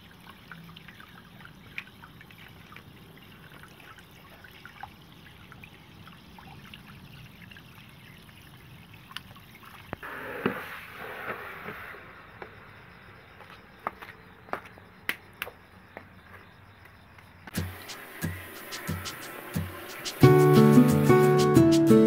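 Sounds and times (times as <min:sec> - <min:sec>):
water trickling and dripping: 0:00.0 - 0:10.1, 0:17.4 - 0:21.6
water splashing rush: 0:00.0 - 0:13.7, 0:17.5 - 0:22.0.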